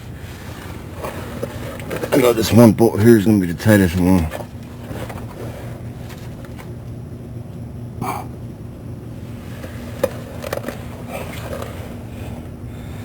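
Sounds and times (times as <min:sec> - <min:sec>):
steady low hum: 0:00.0 - 0:13.0
person grunting: 0:08.0 - 0:08.4.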